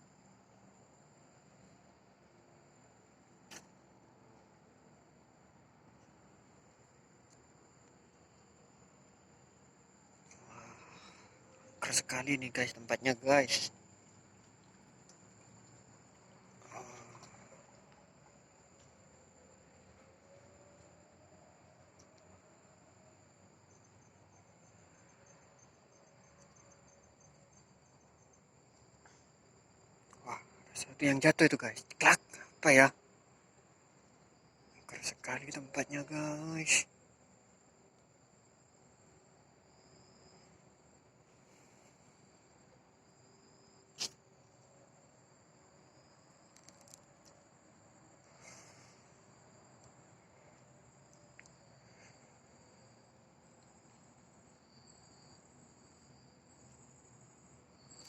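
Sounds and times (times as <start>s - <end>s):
crickets trilling: 0.0s - 58.0s
pulsed cricket chirping: 0.0s - 58.0s
faint ticks: 3.4s - 3.8s, 7.2s - 8.5s, 14.0s - 19.0s, 21.9s - 22.4s, 46.5s - 47.5s, 48.2s - 52.2s
sharp click: 3.5s - 3.7s, 44.0s - 44.2s
faint clicks: 14.4s - 19.0s, 22.0s - 22.3s, 46.5s - 47.4s, 49.8s - 51.6s.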